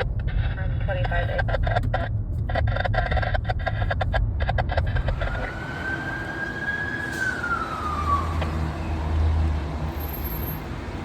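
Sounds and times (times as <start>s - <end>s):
low traffic rumble: 0.0s - 11.0s
emergency vehicle siren wailing: 5.0s - 10.0s.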